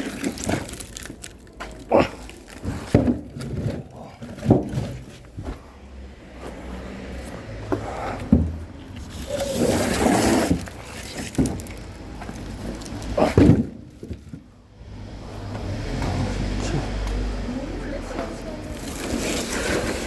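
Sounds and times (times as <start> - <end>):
wooden logs knocking: 2.6 - 5.2, 13.3 - 14.5
scraping and rustling: 8.2 - 14.5, 18.6 - 20.0.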